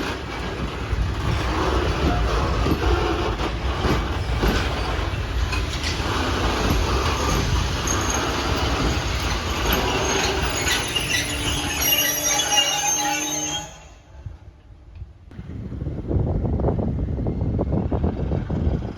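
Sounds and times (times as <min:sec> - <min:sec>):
wheels clacking over rail joints: 0:00.0 - 0:13.2
train rumbling past on rails: 0:00.0 - 0:18.9
thin wheel squeal: 0:09.2 - 0:14.0.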